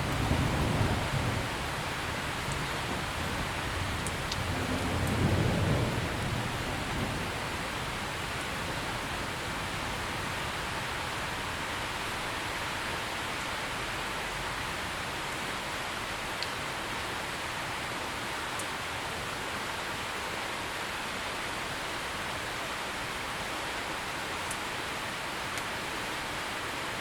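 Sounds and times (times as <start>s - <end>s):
distant thunder rumble: 0.0s - 11.8s
heavy rain hissing: 0.0s - 13.4s.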